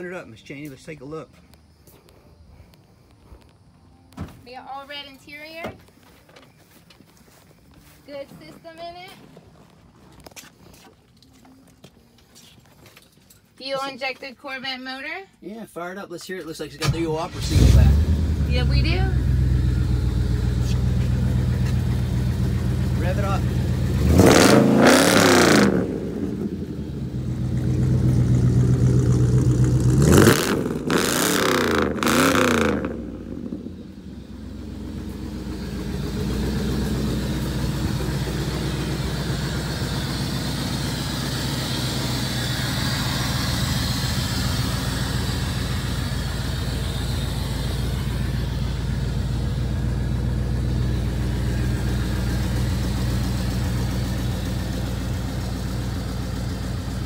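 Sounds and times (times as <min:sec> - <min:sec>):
car engine idling: 0:16.5 - 0:57.0
car engine revving: 0:16.8 - 0:57.0.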